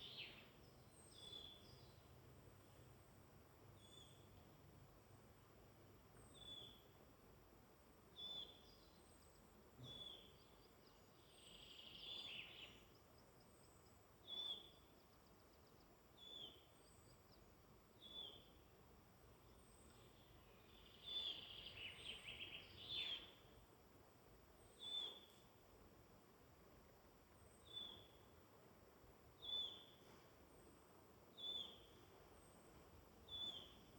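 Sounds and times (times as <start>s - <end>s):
bird twittering song: 0.0s - 3.2s, 3.8s - 4.4s, 6.2s - 7.0s, 8.1s - 18.6s, 19.3s - 23.6s, 24.6s - 25.6s, 27.4s - 28.3s, 29.4s - 30.0s, 31.3s - 33.9s
steady background hiss: 0.0s - 33.9s.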